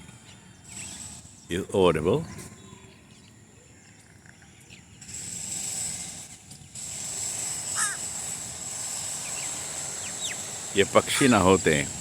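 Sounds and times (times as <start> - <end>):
bird chirps: 9.1 - 11.7.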